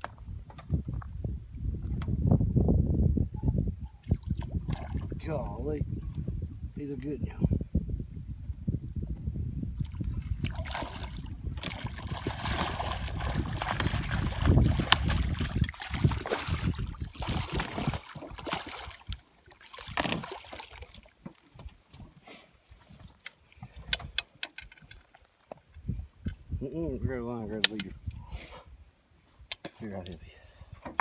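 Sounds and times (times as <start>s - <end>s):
water splashing and sloshing: 4.0s - 5.4s, 9.8s - 25.8s.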